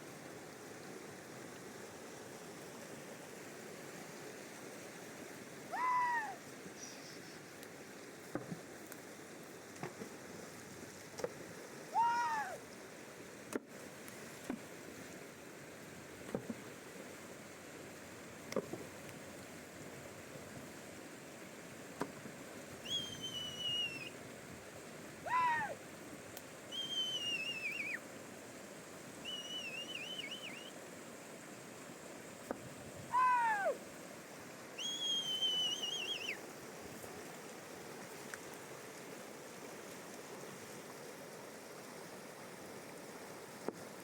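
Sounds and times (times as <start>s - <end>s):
river water rushing: 0.0s - 44.0s
bird whistled calls: 22.8s - 24.1s, 26.7s - 28.0s, 29.2s - 30.8s, 34.8s - 36.4s.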